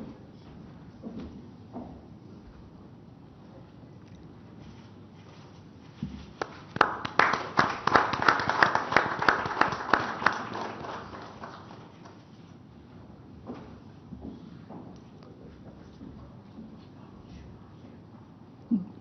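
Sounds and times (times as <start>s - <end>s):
audience applause: 6.4s - 12.2s
nearby hands clapping: 6.4s - 12.2s.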